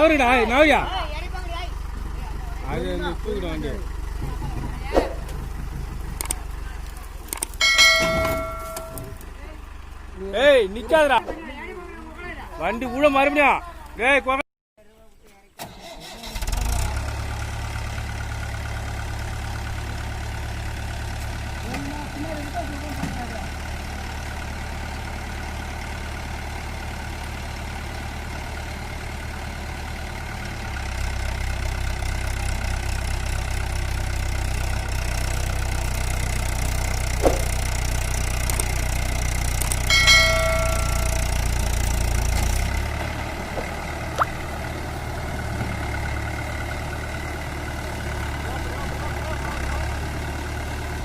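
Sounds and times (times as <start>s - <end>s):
tractor diesel engine throbbing: 0.0s - 13.3s, 16.9s - 51.0s
ringing bell-like tone: 7.6s - 9.2s, 39.9s - 41.6s.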